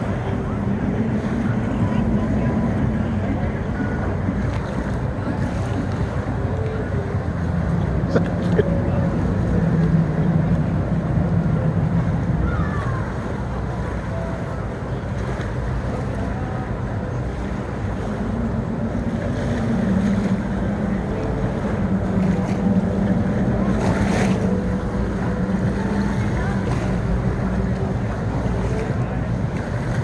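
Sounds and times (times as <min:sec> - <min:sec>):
motorboat engines running: 0:00.0 - 0:30.0
waves washing: 0:00.0 - 0:30.0.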